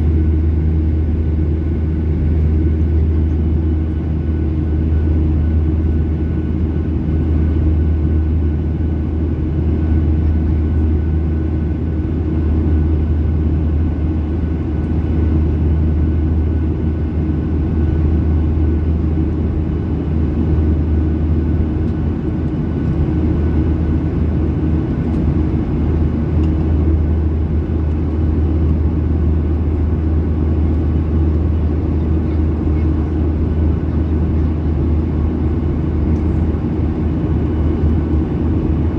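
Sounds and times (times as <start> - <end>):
jet engine rumble: 0.0 - 38.9.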